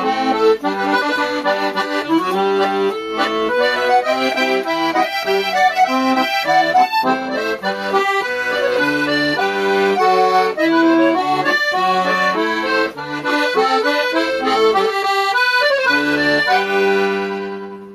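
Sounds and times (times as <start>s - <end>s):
accordion playing: 0.0s - 17.9s.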